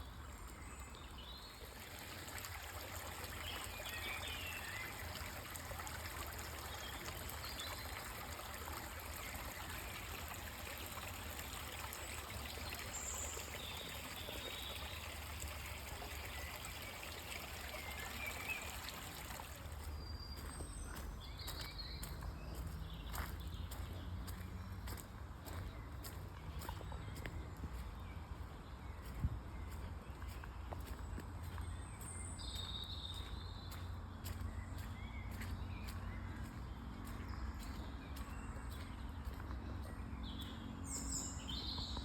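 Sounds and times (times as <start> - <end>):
running water stream: 0.0 - 42.0.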